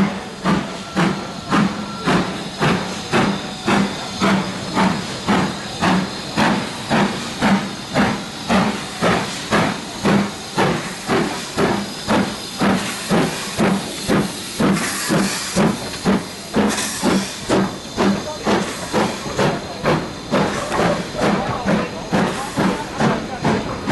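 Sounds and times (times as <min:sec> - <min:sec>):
steam hissing: 0:00.0 - 0:23.9
steam locomotive chuffing: 0:00.0 - 0:23.9.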